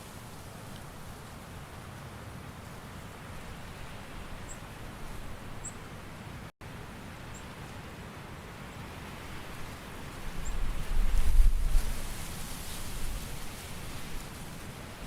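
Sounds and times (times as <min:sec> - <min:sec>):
rain and wind hiss: 0:00.0 - 0:15.0.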